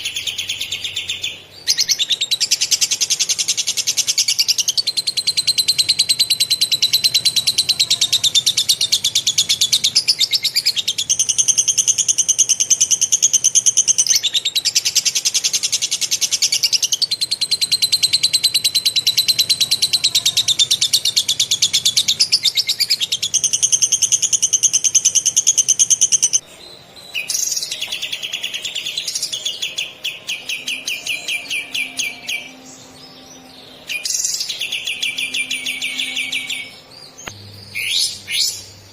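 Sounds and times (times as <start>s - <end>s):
bird singing rapid trill: 0.0s - 38.9s
slower pulsed bird notes: 0.0s - 38.9s.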